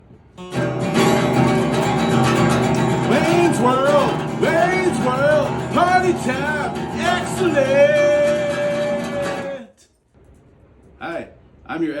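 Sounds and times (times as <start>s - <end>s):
guitar intro music: 0.4s - 9.6s.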